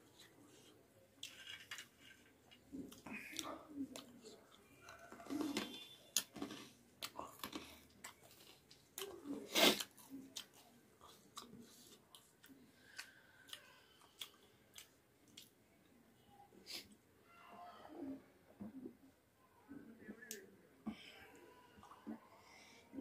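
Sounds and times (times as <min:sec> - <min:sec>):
close chewing with crunchy bites: 0:02.7 - 0:15.6.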